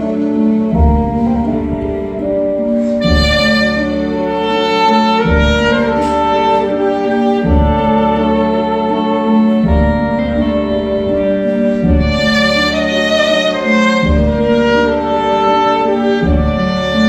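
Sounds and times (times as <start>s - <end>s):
low bass notes: 0.0s - 17.0s
saxophone melody: 0.0s - 17.0s.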